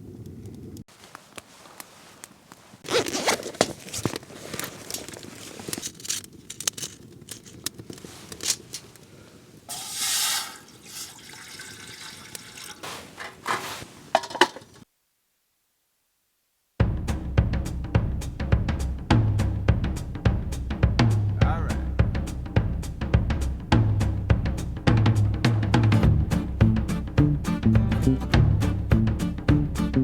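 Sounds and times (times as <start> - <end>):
water dripping and splashing: 9.7 - 13.3
water pouring: 9.7 - 13.5
cookware clinks and knocks: 14.2 - 14.8.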